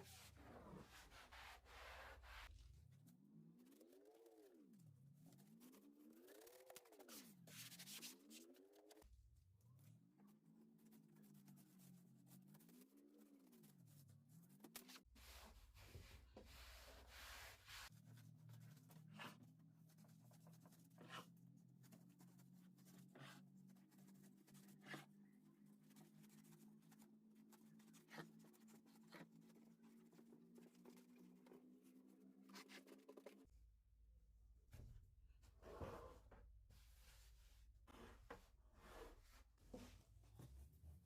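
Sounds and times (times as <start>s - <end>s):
faint rubbing or scratching: 10.9s - 33.5s.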